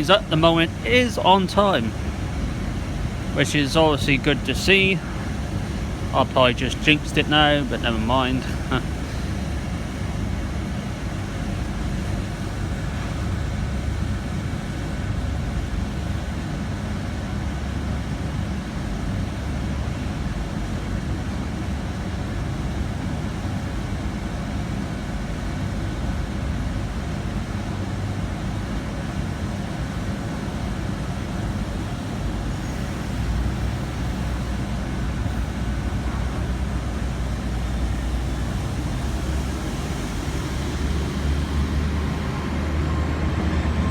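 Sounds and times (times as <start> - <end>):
deeper hum: 0.0 - 16.4, 29.8 - 43.9
train diesel engines rumbling: 0.0 - 43.9.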